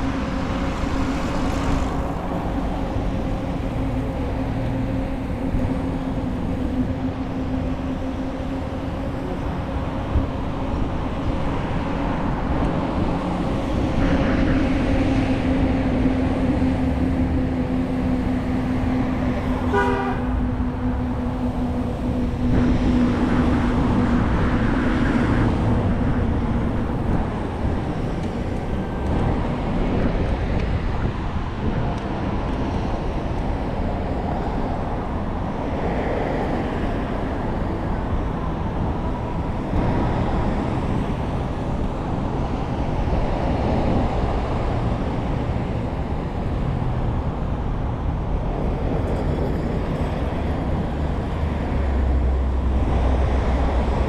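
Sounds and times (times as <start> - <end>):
city traffic noise: 0.0 - 54.0
vehicle horn: 19.4 - 21.0.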